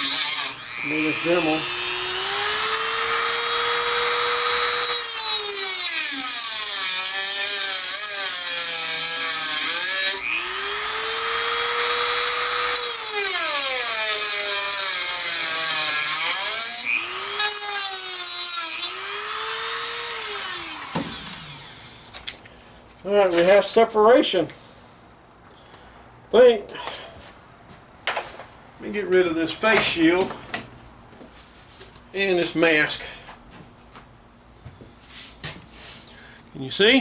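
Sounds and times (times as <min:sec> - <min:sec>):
rotary tool cutting metal: 0:00.0 - 0:22.3.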